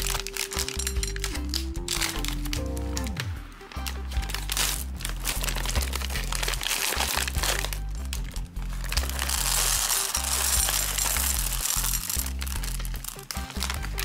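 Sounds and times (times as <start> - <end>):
background music with bass line: 0.0 - 14.0
plastic candy pouch crinkling: 0.0 - 14.0.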